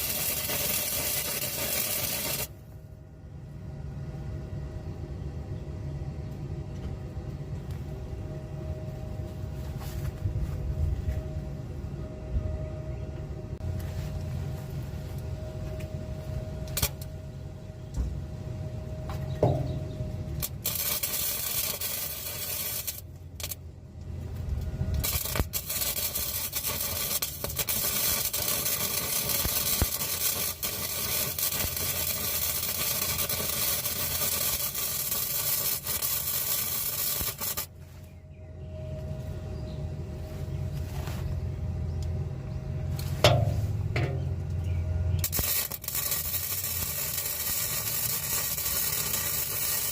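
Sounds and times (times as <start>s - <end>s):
welder arc crackling and hissing: 0.0s - 2.8s, 13.6s - 17.1s, 19.1s - 38.0s, 45.1s - 49.9s
low steady hum: 0.0s - 49.9s.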